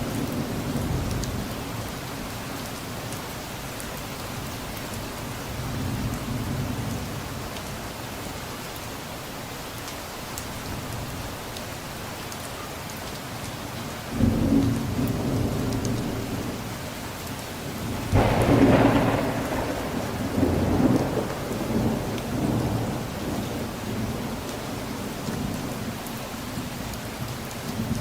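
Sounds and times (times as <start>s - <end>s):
steady rain: 0.0s - 28.0s
thunder rumbling: 17.8s - 25.7s.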